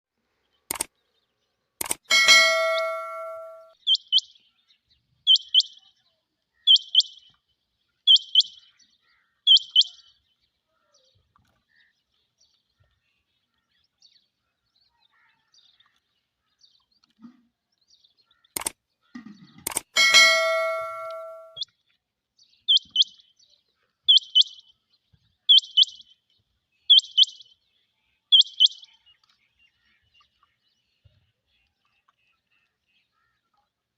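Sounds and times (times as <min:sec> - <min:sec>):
clicks: 0:00.7 - 0:00.9, 0:01.8 - 0:03.7, 0:18.6 - 0:18.8, 0:19.6 - 0:21.6
bell-like chime: 0:02.1 - 0:03.8, 0:20.0 - 0:21.6.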